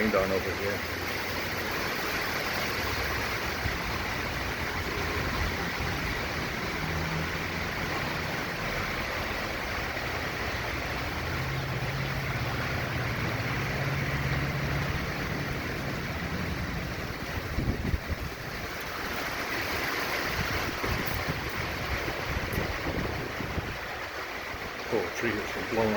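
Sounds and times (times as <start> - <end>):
hurricane wind and rain: 0.0 - 25.9
wind gusts buffeting microphone: 2.8 - 10.1, 14.3 - 25.9.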